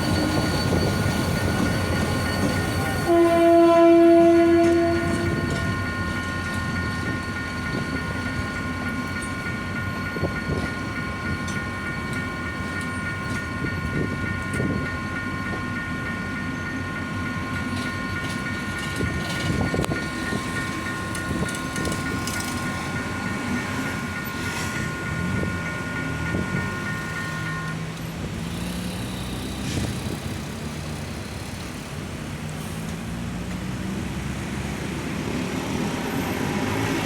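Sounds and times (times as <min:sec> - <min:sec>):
electronic crossing warning bell: 0:00.0 - 0:30.4
train wheels clicking over rail joints: 0:04.0 - 0:32.0.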